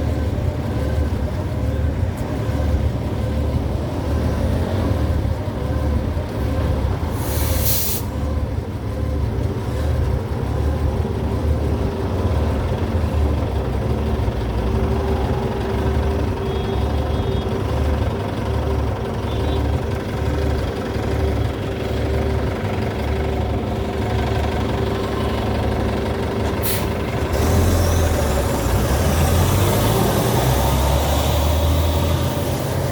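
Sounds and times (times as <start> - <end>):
bus engine running: 0.0 - 32.9
air brake hiss: 7.1 - 8.2, 26.6 - 27.0.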